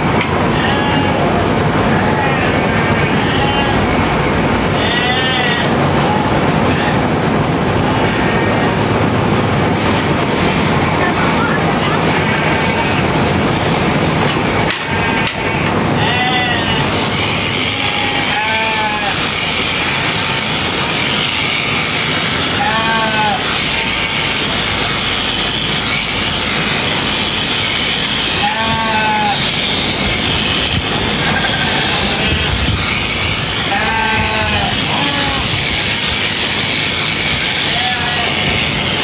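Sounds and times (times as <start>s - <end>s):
sheep bleating: 0.4s - 4.0s, 4.8s - 5.8s, 14.8s - 21.9s, 22.5s - 25.1s, 28.2s - 29.9s, 31.1s - 38.8s
electric shearing clippers whirring: 16.2s - 39.0s.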